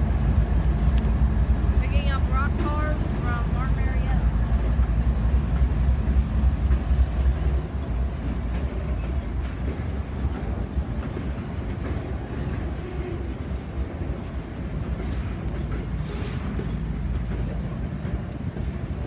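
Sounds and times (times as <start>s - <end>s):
locomotive engine rumble: 0.0s - 19.0s.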